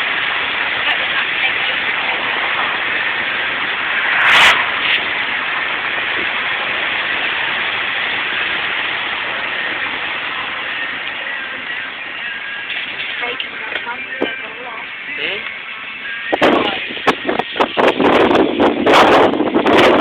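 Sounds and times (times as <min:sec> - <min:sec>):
floodwater gushing: 0:00.0 - 0:20.0
short loud burst: 0:03.9 - 0:05.3.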